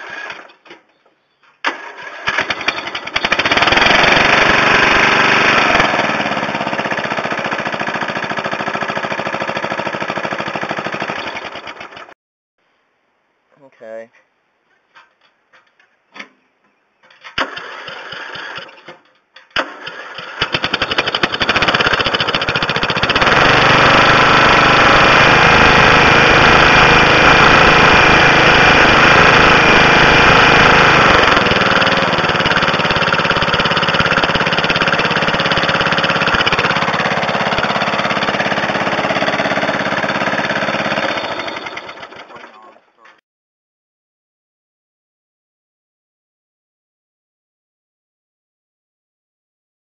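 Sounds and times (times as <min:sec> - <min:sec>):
mower engine being cranked: 0:00.0 - 0:00.6, 0:01.6 - 0:06.2, 0:17.2 - 0:42.7
mower engine running: 0:01.7 - 0:12.1, 0:17.5 - 0:18.9, 0:19.6 - 0:42.6.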